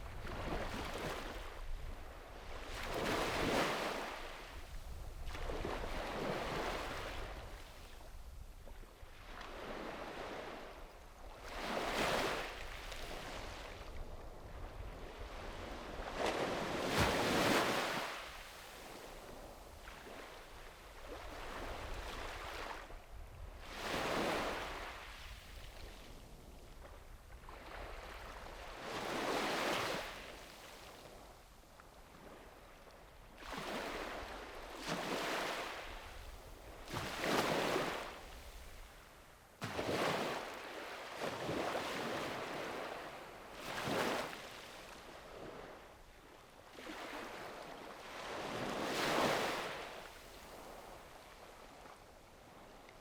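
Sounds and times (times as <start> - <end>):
small waves breaking on beach: 0.0 - 53.0.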